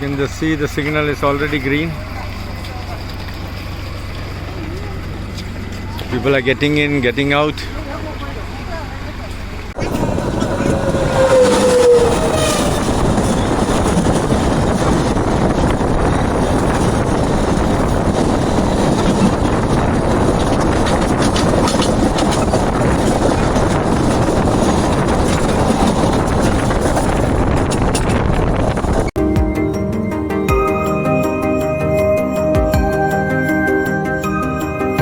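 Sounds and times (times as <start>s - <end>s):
train wheels rumbling on track: 0.0s - 33.2s
music: 29.2s - 35.0s.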